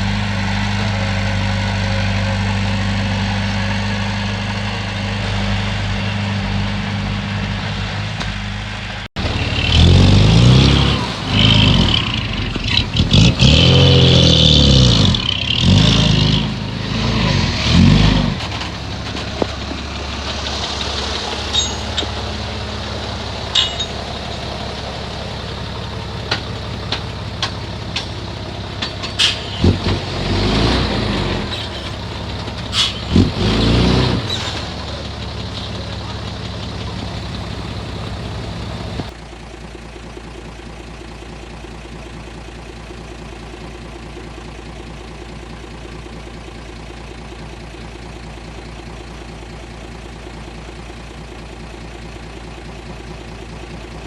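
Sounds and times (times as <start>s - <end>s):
heavy diesel engine revving: 0.0s - 39.2s
clanks and knocks: 17.7s - 39.1s.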